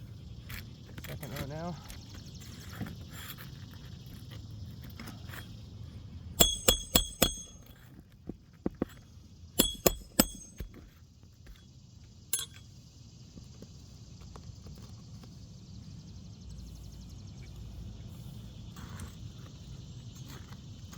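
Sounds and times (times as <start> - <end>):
hammer striking nails: 6.4 - 7.7, 9.6 - 10.8.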